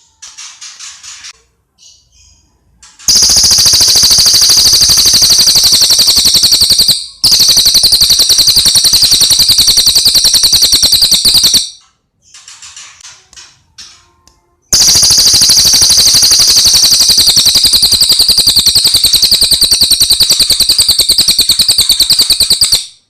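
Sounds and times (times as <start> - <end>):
bird trilling: 3.1 - 11.8.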